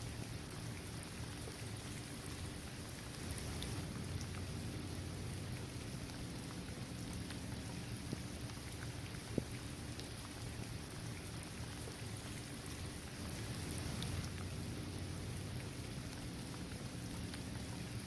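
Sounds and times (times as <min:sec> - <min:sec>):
rain falling on hard court: 0:00.0 - 0:18.0
raindrops ticking: 0:01.9 - 0:11.2, 0:12.9 - 0:18.0.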